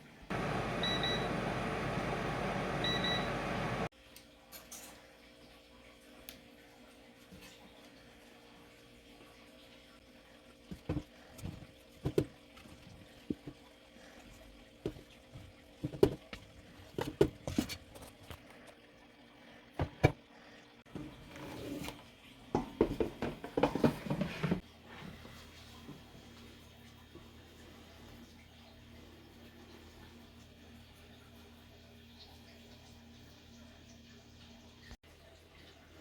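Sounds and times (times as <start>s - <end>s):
clattering and rubbing: 23.1s - 24.6s.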